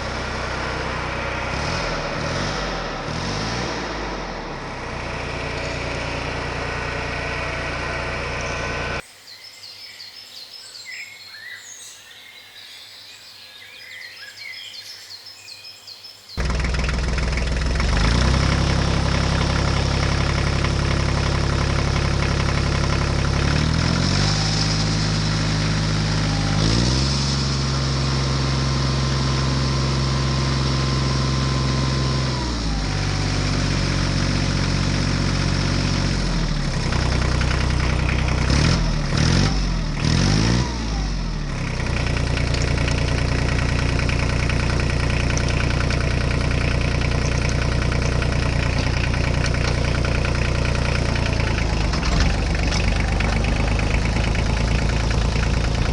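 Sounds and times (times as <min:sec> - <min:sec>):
engine revving and idling: 0:00.0 - 0:09.0, 0:16.4 - 0:55.9.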